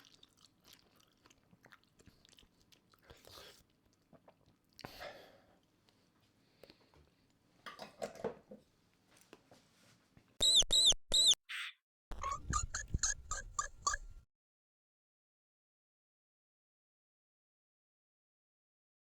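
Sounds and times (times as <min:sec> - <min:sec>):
short lower squeaks: 0:10.4 - 0:11.4, 0:12.1 - 0:14.2
high mouse squeaks: 0:10.4 - 0:14.2.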